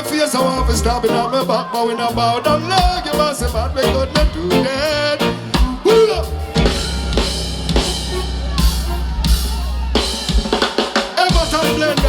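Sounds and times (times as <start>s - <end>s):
deep bass line: 0.0s - 1.4s, 2.1s - 10.6s, 11.3s - 12.0s
reggae band playing: 0.0s - 12.0s
drum kit beat: 2.5s - 12.0s.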